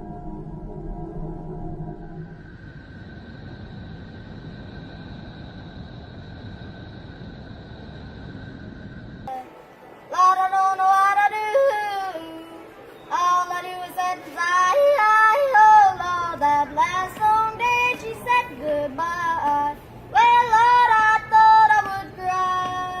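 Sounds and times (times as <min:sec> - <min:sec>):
high-pitched wordless singing: 0:10.1 - 0:23.0.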